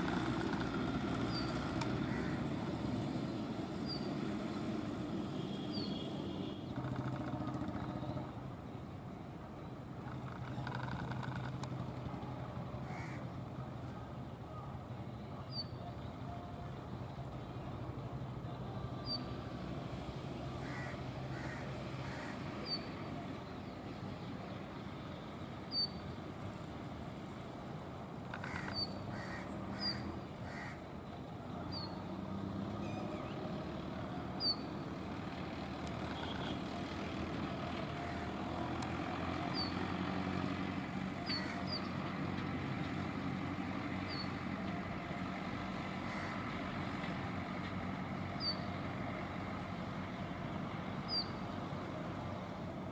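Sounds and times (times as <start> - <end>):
bird chirp calls: 25.6 - 26.2, 34.4 - 34.8, 39.3 - 40.0, 48.4 - 48.7, 51.1 - 51.4.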